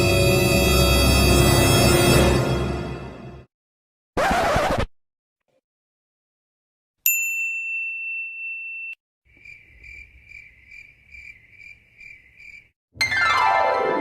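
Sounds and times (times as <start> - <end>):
cricket chirping: 9.3 - 12.7.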